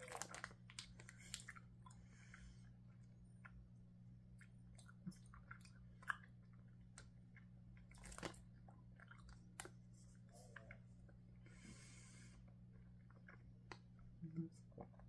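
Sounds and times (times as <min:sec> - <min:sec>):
chewing gummy candy: 0:00.0 - 0:11.4, 0:12.4 - 0:15.0.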